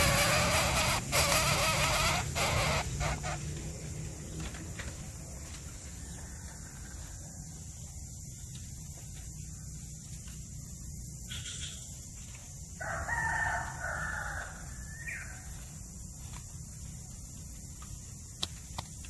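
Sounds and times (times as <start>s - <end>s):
rooster crowing: 5.8s - 7.8s, 12.7s - 15.7s.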